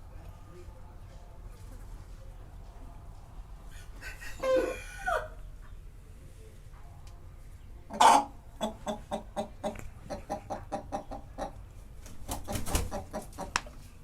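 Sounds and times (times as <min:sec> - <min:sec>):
chickens clucking: 0:03.6 - 0:05.9, 0:07.8 - 0:13.8
chicken squawk: 0:03.7 - 0:05.4, 0:07.9 - 0:09.5.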